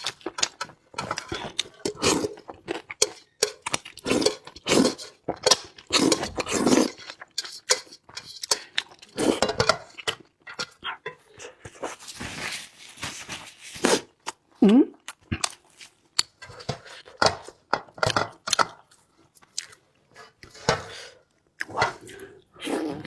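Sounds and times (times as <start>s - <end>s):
food crunching: 13.9s - 23.0s.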